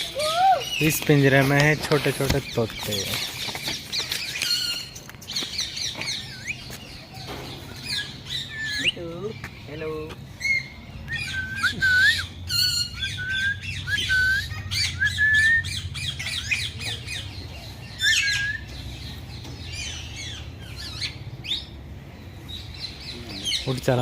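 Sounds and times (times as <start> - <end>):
parrots chattering and squawking: 4.0 - 21.8.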